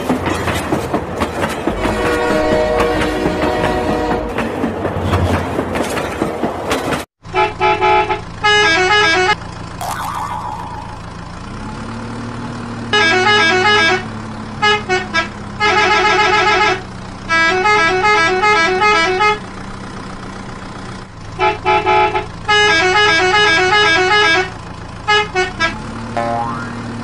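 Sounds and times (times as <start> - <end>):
musical vehicle horn: 1.8 - 4.3, 7.3 - 9.4, 12.9 - 19.4, 21.4 - 26.7
low engine drone: 9.4 - 11.7.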